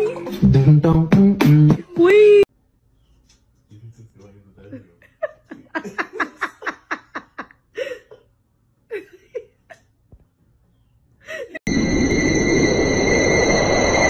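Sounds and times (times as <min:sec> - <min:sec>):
person laughing: 0:04.7 - 0:08.2, 0:08.9 - 0:09.9, 0:11.3 - 0:11.7
loud steady hiss with high tones: 0:11.7 - 0:14.0.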